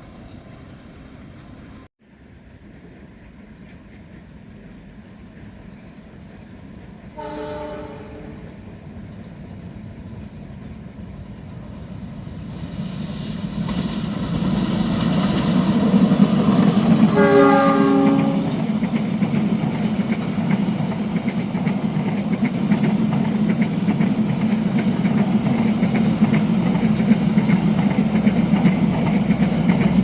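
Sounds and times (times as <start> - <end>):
train engine and wheels rumbling: 0.0 - 30.0
train horn: 7.1 - 8.6, 17.0 - 18.8.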